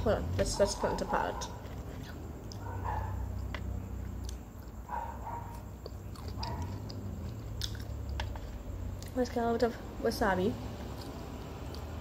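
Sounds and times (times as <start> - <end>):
steady low hum: 0.0 - 12.0
person chewing: 1.4 - 9.2, 10.8 - 12.0.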